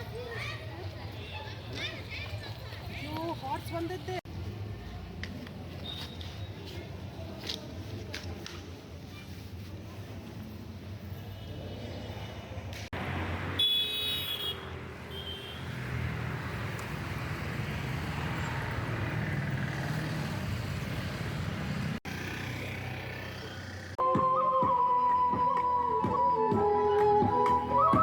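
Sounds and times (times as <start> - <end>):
road traffic noise: 0.0 - 28.0
music with flute-like notes: 24.0 - 28.0.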